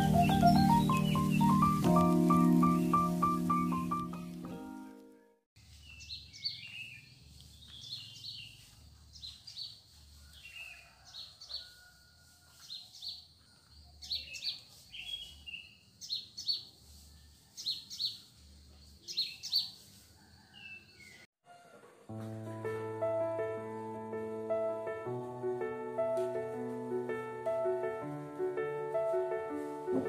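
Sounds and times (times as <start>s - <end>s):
songbirds chirping: 0.0s - 4.2s, 5.6s - 12.0s, 12.6s - 21.3s.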